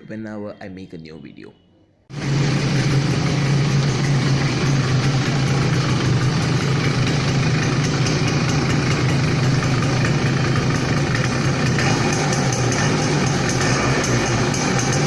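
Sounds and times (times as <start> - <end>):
two-stroke motorcycle engine idling: 2.1 - 15.0.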